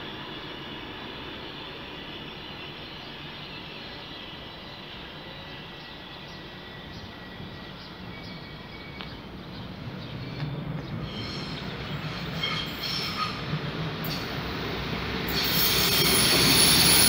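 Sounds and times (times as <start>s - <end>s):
train rumbling: 0.0s - 17.0s
wheel squeal: 15.3s - 17.0s.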